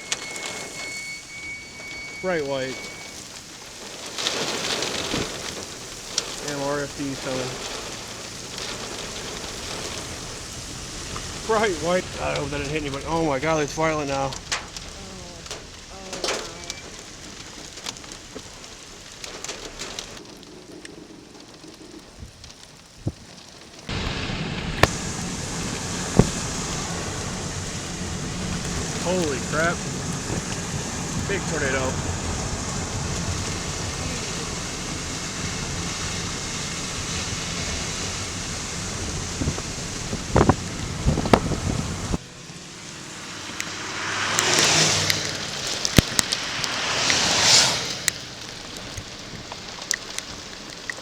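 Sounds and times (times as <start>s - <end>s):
strong wind buffeting microphone: 0.0s - 20.2s, 21.8s - 51.0s
sharp ticks of raindrops: 0.0s - 51.0s
steady rain hiss: 0.0s - 51.0s.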